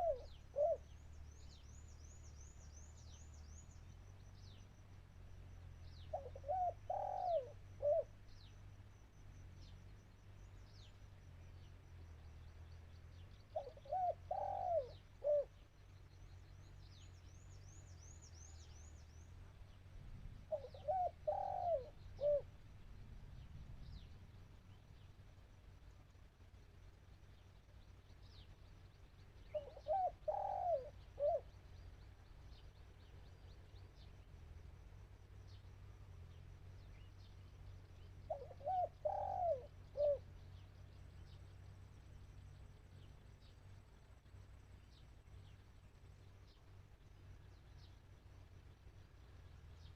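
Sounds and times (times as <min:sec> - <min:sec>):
dove cooing: 0:00.0 - 0:01.0, 0:06.1 - 0:08.2, 0:13.5 - 0:15.6, 0:20.5 - 0:22.5, 0:29.4 - 0:31.6, 0:38.3 - 0:40.3
small birds chirping: 0:00.0 - 0:49.9.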